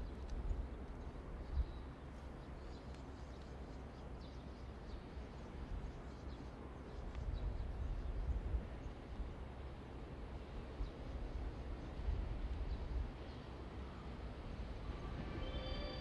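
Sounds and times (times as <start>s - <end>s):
faint bird chirps: 14.8s - 16.0s.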